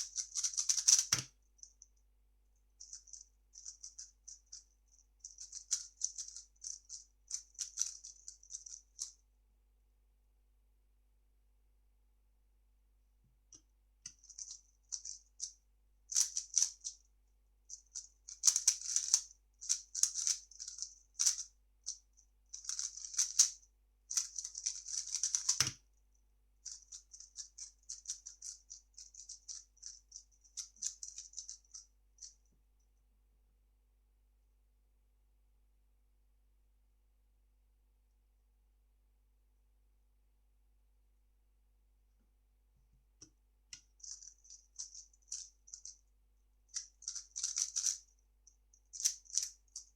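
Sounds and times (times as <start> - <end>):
plastic puzzle cube clicking: 0.0 - 1.3, 16.2 - 16.9, 18.4 - 21.4, 22.6 - 23.5, 24.2 - 25.8, 27.2 - 30.0, 47.0 - 48.0, 49.0 - 49.5.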